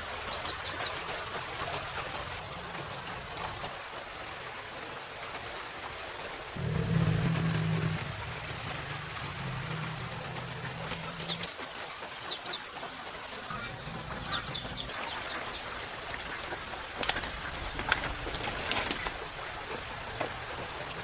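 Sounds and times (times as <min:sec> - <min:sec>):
small birds chirping: 0:06.6 - 0:12.7, 0:13.3 - 0:16.6.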